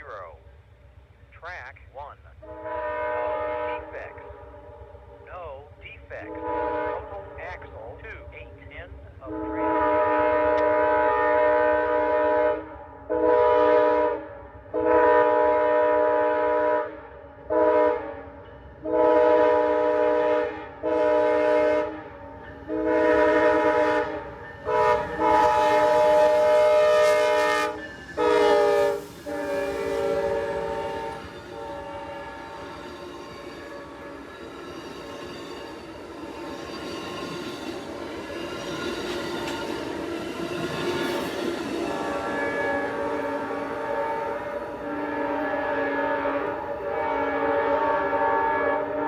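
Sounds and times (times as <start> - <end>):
train rumbling by: 0.0 - 49.0
locomotive horn blasts: 2.4 - 4.1, 6.2 - 7.4, 9.2 - 32.7, 42.0 - 49.0.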